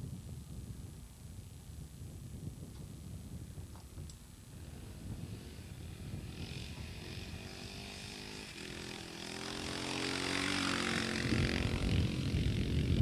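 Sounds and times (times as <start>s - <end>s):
motorcycle engine revving: 4.5s - 13.0s.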